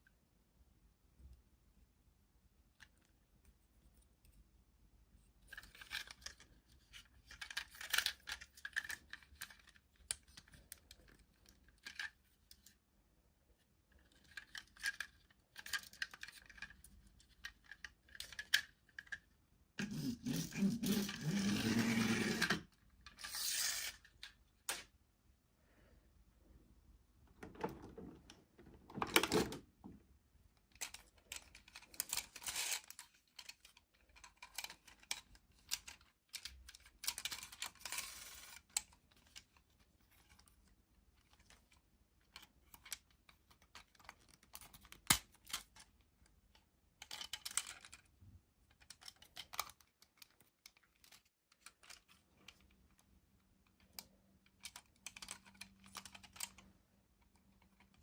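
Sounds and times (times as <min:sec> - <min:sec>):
toy packaging rustling: 0:05.4 - 0:12.7, 0:13.9 - 0:25.0, 0:30.5 - 0:46.3, 0:47.0 - 0:56.7.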